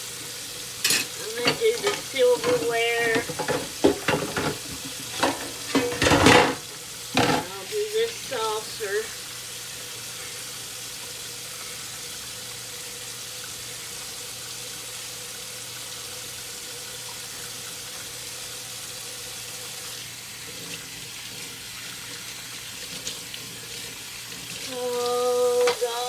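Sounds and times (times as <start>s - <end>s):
dishes clinking: 0.8s - 7.6s, 25.5s - 26.0s
tap running into sink: 0.8s - 7.7s, 25.6s - 26.0s.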